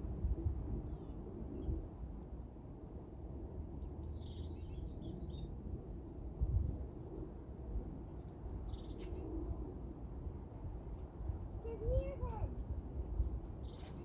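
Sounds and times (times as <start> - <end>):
wind rumble on microphone: 0.0 - 14.0
small songbirds chirping: 0.2 - 7.5, 8.1 - 9.8, 12.7 - 14.0.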